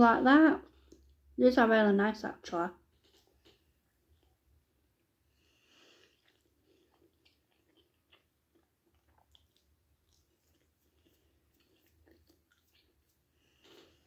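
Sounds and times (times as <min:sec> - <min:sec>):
soft chewing mouth clicks: 0:00.7 - 0:01.2, 0:05.7 - 0:14.0.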